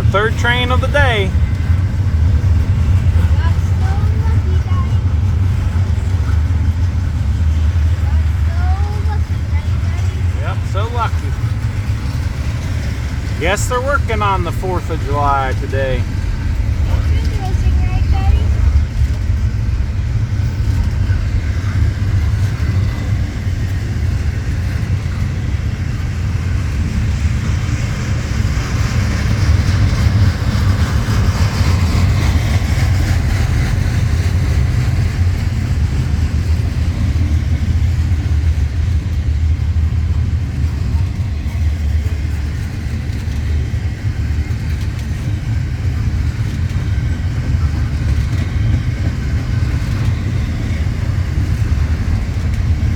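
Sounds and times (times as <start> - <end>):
freight train rumbling on rails: 0.0 - 52.9.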